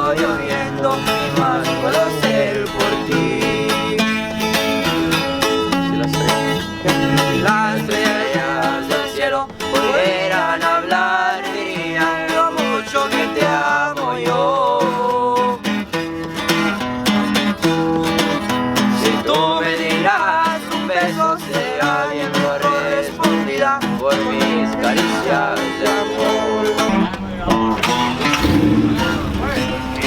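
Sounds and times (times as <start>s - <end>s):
plucked guitar runs: 0.0s - 30.0s
strummed guitar chords: 0.0s - 30.0s
bass line: 27.3s - 30.0s.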